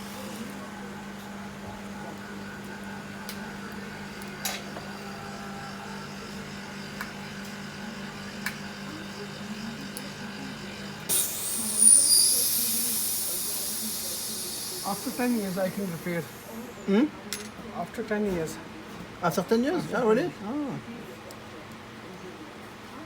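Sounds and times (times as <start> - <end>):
hiss of blown air with whistle: 11.1 - 16.3.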